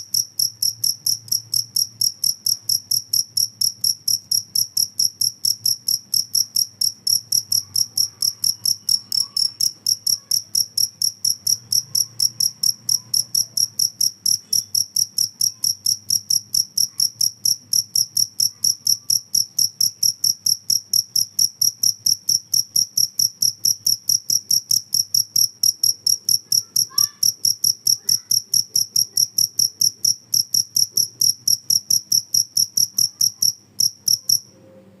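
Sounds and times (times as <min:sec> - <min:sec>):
cricket chirping: 0:00.0 - 0:34.5.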